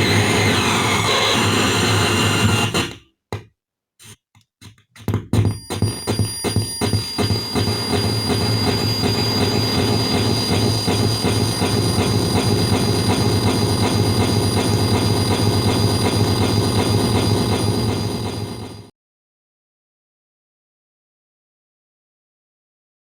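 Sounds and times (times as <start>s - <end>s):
rhythmic delay effect noise: 5.6s - 18.9s
steady high whine: 5.6s - 18.9s.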